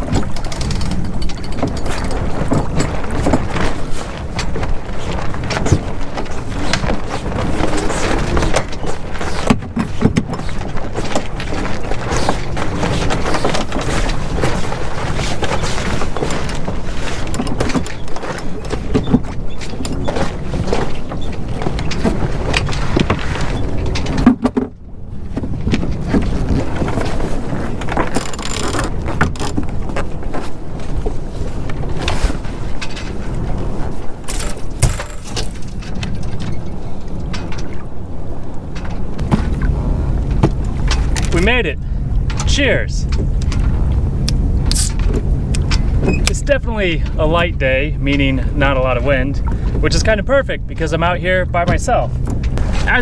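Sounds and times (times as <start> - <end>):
boat fittings clicking and knocking: 0.0 - 7.5, 8.2 - 27.0, 42.1 - 47.3
wind buffeting microphone: 0.0 - 53.0
knocks and clicks: 34.2 - 50.9, 51.5 - 53.0.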